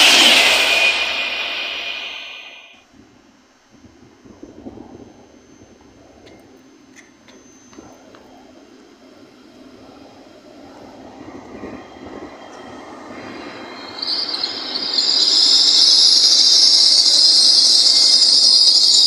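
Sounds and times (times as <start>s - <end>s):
train passing: 0.0s - 2.8s, 9.1s - 19.0s.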